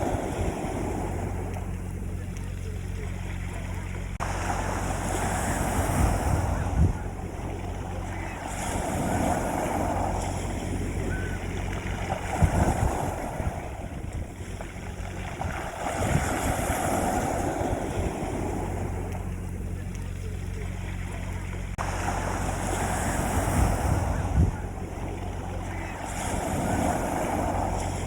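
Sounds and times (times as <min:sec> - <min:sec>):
sea waves washing onto beach: 0:00.0 - 0:28.0
steady low rumble: 0:00.0 - 0:28.0.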